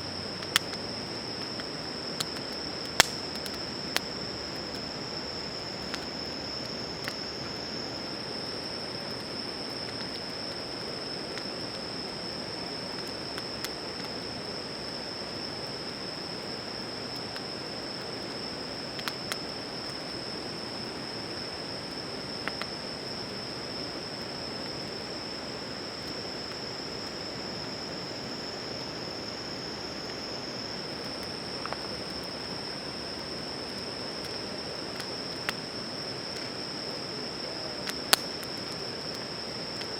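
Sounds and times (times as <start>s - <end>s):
night insects trilling: 0.0s - 39.9s
sharp crackles: 1.4s - 4.9s, 37.8s - 39.2s.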